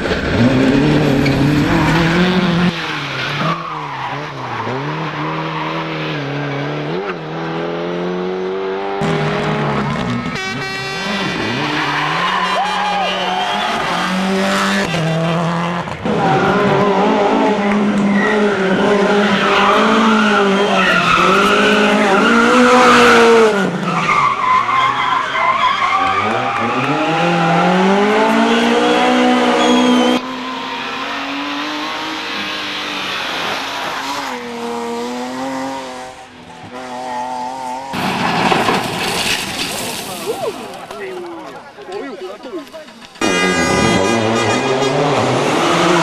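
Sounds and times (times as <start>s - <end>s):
rally car engines revving: 0.0s - 46.0s
tyres skidding: 0.0s - 46.0s
burst of noise: 37.9s - 40.8s.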